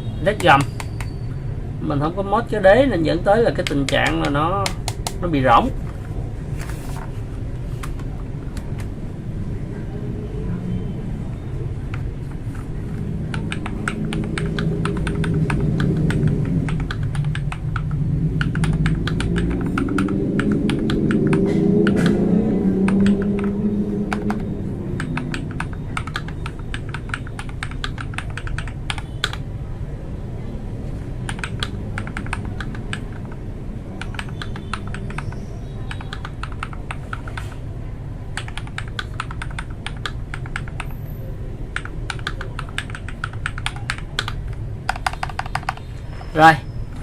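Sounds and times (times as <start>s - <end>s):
mechanical keyboard typing: 0.3s - 1.2s, 3.5s - 5.3s, 13.2s - 22.2s, 22.8s - 29.4s, 31.2s - 33.4s, 34.0s - 37.5s, 38.4s - 40.9s, 41.7s - 45.8s.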